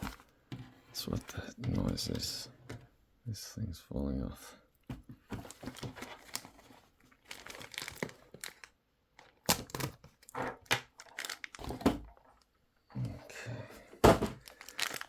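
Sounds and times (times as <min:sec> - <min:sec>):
packaging crinkling and tearing: 0:05.3 - 0:12.4, 0:14.2 - 0:15.0.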